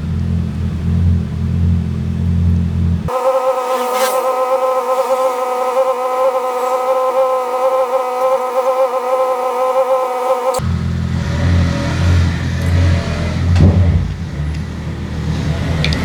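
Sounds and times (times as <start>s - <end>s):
steady machine buzz: 3.1s - 10.8s.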